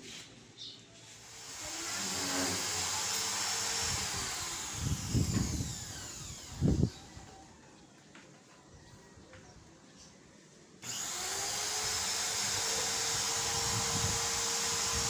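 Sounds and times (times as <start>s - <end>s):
small motor whining: 1.2s - 7.3s, 10.8s - 15.0s.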